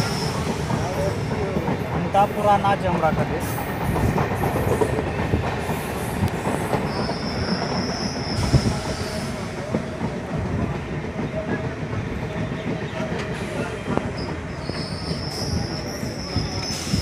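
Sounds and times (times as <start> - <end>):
train wheel rumble: 0.0 - 17.0
high wheel squeal: 13.4 - 17.0.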